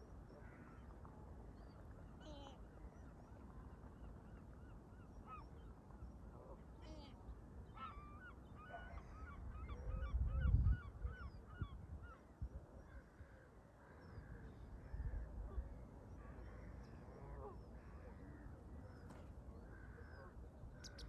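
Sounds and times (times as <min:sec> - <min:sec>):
wind rumble on microphone: 0:09.4 - 0:12.8, 0:14.8 - 0:15.8.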